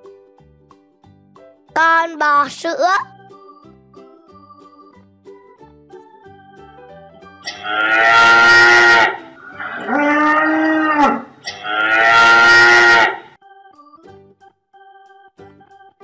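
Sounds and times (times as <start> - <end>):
faint keyboard music: 0.0 - 11.4, 13.3 - 16.0
cow mooing: 7.5 - 13.3.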